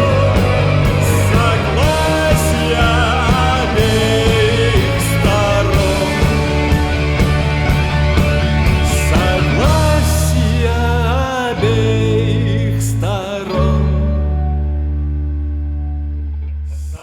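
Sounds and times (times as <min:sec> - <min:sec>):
drum hits: 0:00.0 - 0:10.4
rock band playing: 0:00.0 - 0:16.2.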